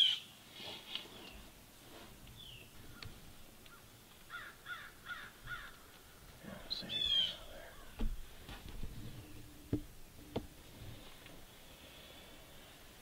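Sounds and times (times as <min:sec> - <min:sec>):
birds calling: 0:02.2 - 0:12.9
short knocks: 0:07.9 - 0:09.0.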